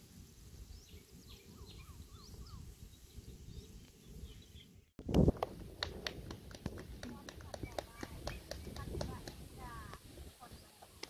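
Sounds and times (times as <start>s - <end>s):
birds chirping and calling: 0.8s - 4.8s.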